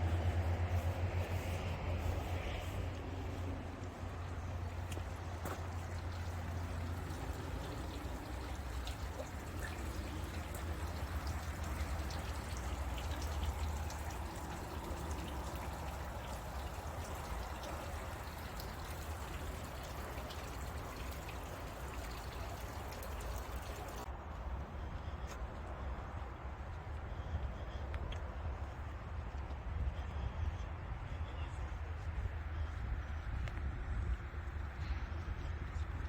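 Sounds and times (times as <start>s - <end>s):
water trickling: 3.3s - 24.1s.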